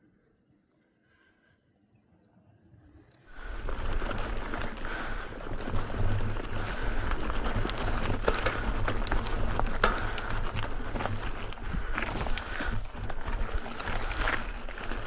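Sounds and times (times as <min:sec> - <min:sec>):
bike tyres crunching on gravel: 0:03.3 - 0:15.0
clicks and rattles: 0:03.3 - 0:15.0.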